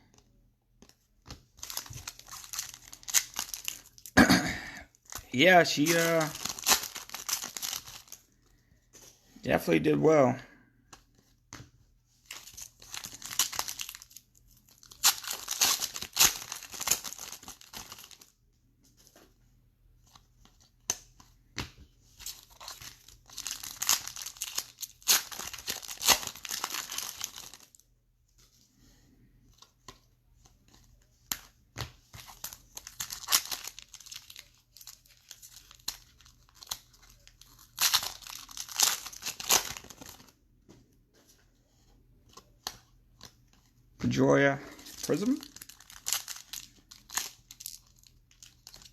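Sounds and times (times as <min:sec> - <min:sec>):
foil wrappers tearing and crinkling: 0:01.6 - 0:04.2, 0:05.0 - 0:08.2, 0:12.3 - 0:18.3, 0:22.2 - 0:27.8, 0:32.2 - 0:40.3, 0:44.7 - 0:48.9.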